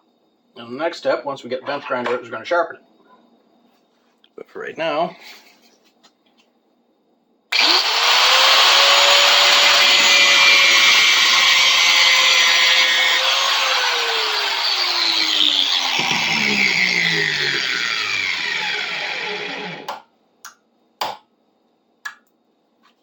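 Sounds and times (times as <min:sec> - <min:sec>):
angle grinder cutting steel: 0:07.5 - 0:19.9.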